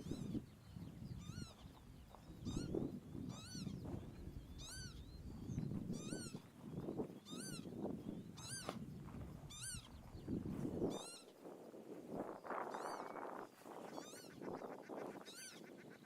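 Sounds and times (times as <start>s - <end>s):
low wind rumble: 0.0s - 15.8s
bird giving high cries: 1.1s - 1.6s, 2.4s - 3.8s, 4.5s - 5.2s, 7.3s - 7.7s, 8.4s - 8.7s, 9.5s - 10.0s, 13.9s - 15.8s.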